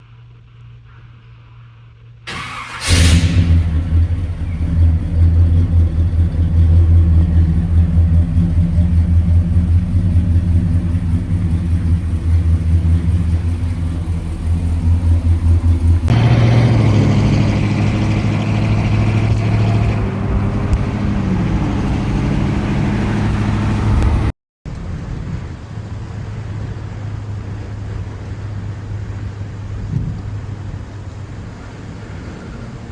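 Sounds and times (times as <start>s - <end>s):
car engine idling: 2.3s - 24.3s.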